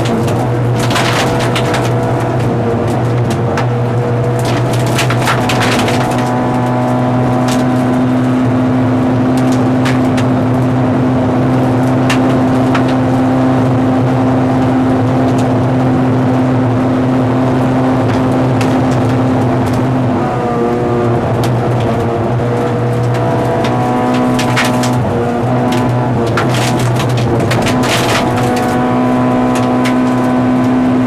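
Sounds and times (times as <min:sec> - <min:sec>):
gravel striking car: 0:00.0 - 0:14.1, 0:18.0 - 0:31.0
car engine running: 0:00.0 - 0:31.0.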